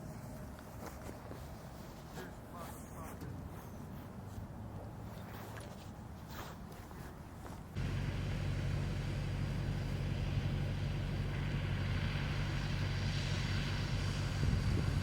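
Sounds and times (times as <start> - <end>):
engine running with low hum: 3.6 - 15.0.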